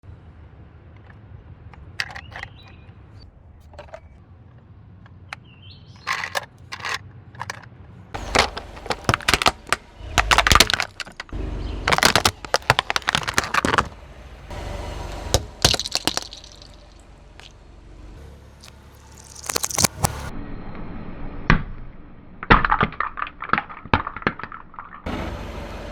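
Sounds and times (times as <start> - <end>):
tyre crushing brittle objects: 8.2 - 14.0, 15.3 - 17.5, 18.6 - 20.3.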